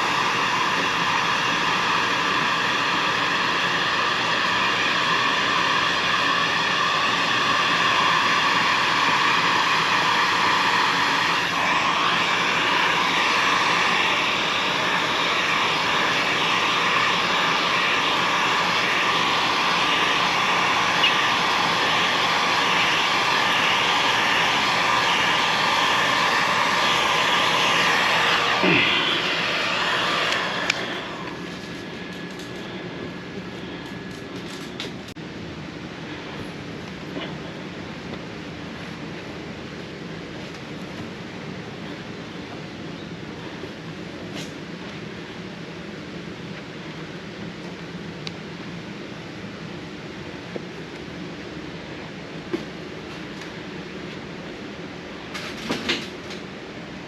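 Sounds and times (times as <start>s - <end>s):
loud whirring motor or blower: 0.0s - 45.6s.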